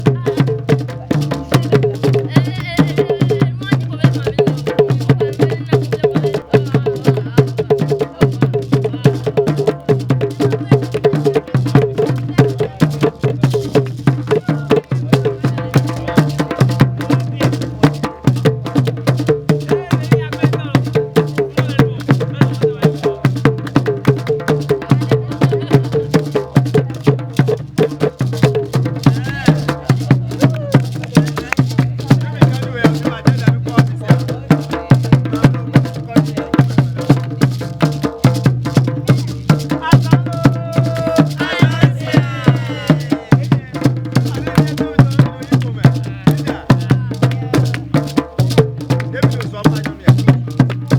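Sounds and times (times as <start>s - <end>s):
voices joining in: 0.0s - 18.8s, 19.6s - 28.0s, 28.6s - 37.2s, 39.0s - 48.0s
hand drums playing fast rhythm: 0.0s - 50.9s.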